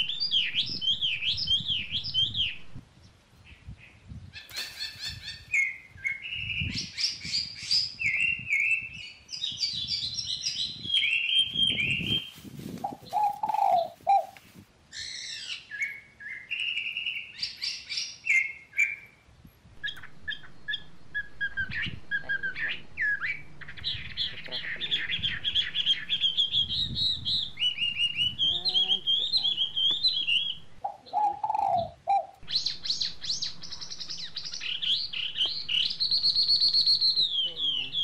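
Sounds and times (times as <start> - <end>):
small birds chirping: 0.0 - 38.0
rustling of sticks and string: 11.9 - 14.8.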